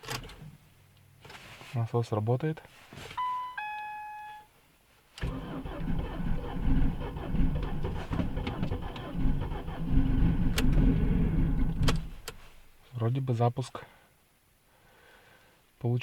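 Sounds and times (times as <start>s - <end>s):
short electronic beep: 3.2s - 4.5s
starter motor cranking engine: 5.2s - 12.2s.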